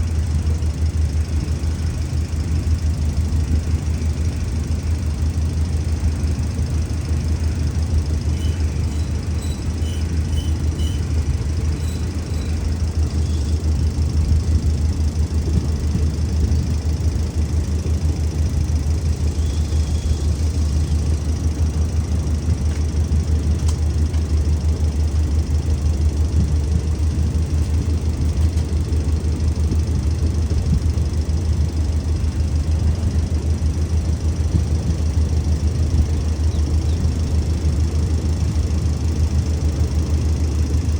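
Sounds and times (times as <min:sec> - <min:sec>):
locomotive engine idling: 0:00.0 - 0:40.9.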